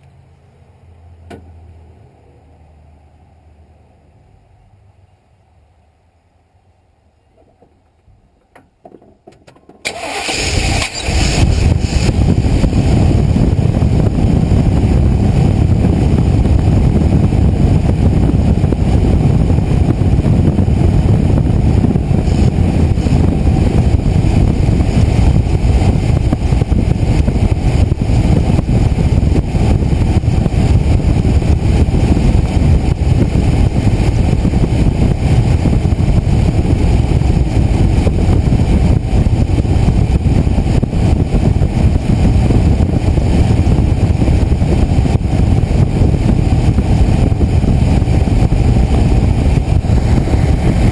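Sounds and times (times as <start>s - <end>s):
truck engine starting and running: 9.8s - 50.9s.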